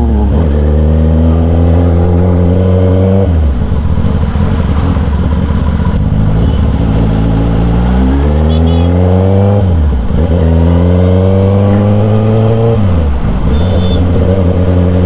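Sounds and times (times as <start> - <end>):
motorcycle engine and exhaust: 0.0 - 15.0.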